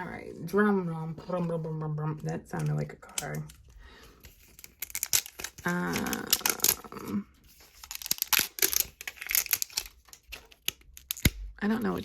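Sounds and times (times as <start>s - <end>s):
plastic wrapping crinkling: 2.4s - 11.5s
person humming: 5.6s - 7.3s.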